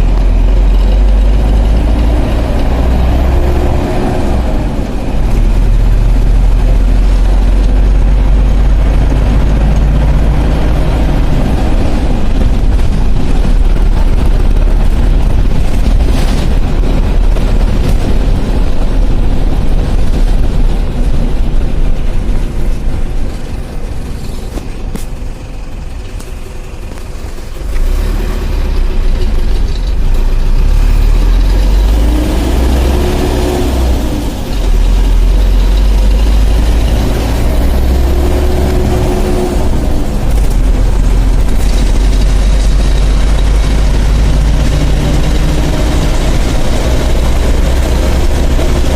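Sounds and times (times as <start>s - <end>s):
bus engine running: 0.0s - 48.9s.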